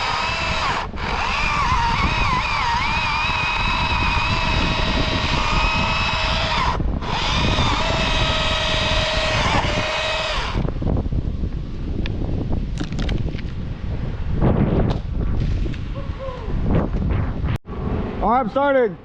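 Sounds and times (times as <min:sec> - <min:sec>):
chainsaw running at high revs: 0:00.0 - 0:10.7.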